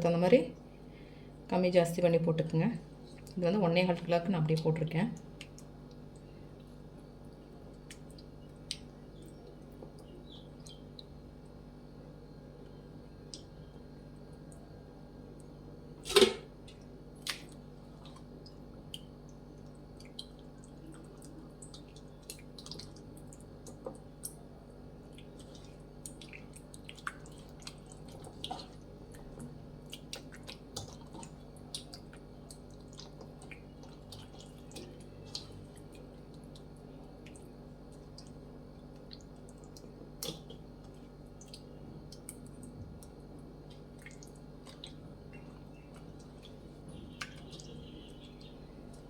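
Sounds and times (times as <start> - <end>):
hands squishing wet paste: 17.2 - 49.0.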